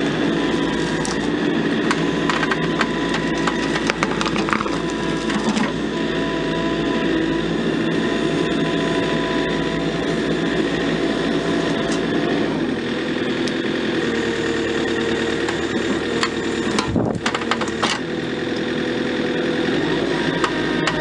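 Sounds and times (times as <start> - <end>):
backhoe diesel engine running: 0.0 - 21.0
sharp knocks and clicks: 1.9 - 5.7, 15.5 - 18.0, 20.4 - 21.0.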